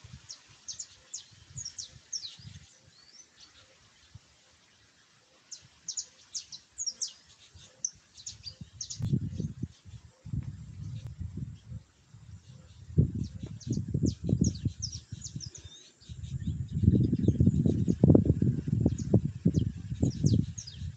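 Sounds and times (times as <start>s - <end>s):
small birds chirping: 0.0s - 20.9s
low rumbling on microphone: 8.6s - 20.9s.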